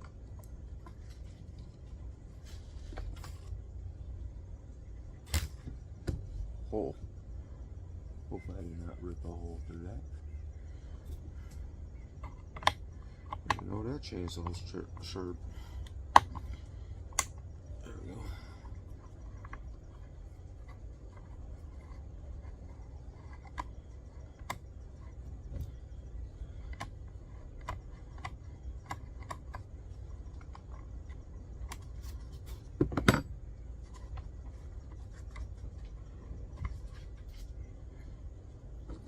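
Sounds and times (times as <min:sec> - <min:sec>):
low steady rumble: 0:00.0 - 0:39.0
hand tools clicking and tapping: 0:12.2 - 0:15.2.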